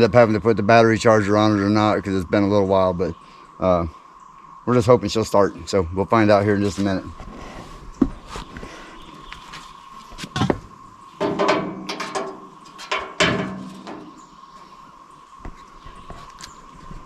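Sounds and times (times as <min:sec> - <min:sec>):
tools and parts clattering: 0:11.2 - 0:14.2.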